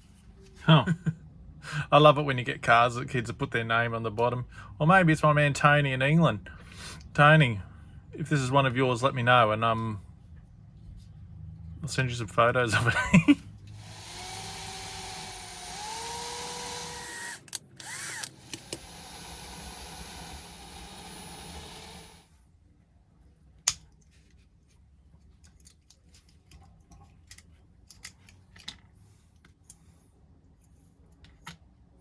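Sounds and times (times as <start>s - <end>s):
electric drill running: 13.8s - 22.3s
small parts clicking: 25.4s - 28.9s.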